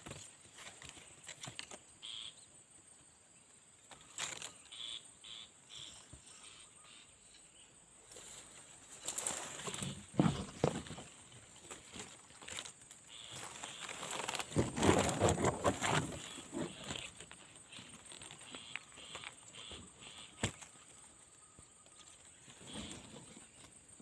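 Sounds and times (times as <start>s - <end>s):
rustling and brushing: 8.0s - 21.0s, 21.9s - 24.0s.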